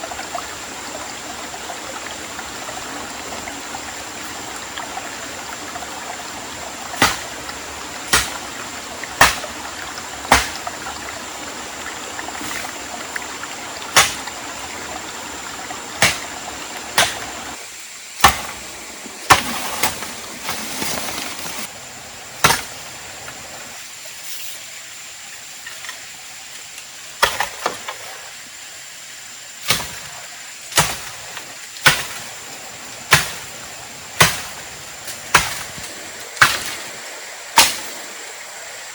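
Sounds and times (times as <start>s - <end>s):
stream rushing: 0.0s - 38.9s
blade chopping into wood: 7.0s - 7.3s, 8.1s - 8.4s, 9.2s - 9.5s, 10.3s - 10.6s, 14.0s - 14.3s, 16.0s - 16.3s, 17.0s - 17.3s, 18.2s - 18.6s, 19.3s - 20.1s, 22.4s - 22.8s, 29.7s - 30.1s, 30.8s - 31.2s, 31.8s - 32.3s, 33.1s - 33.5s, 34.2s - 36.9s, 37.6s - 38.0s.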